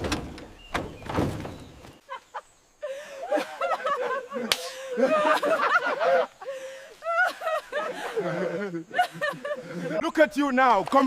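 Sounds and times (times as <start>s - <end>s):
people laughing: 2.0s - 10.2s.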